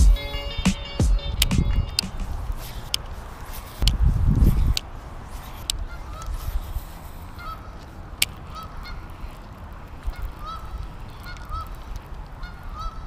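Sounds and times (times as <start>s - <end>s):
wind rumbling on microphone: 0.1s - 13.0s
bird honking calls: 7.3s - 7.8s, 8.4s - 9.4s, 10.0s - 11.8s, 12.4s - 13.0s.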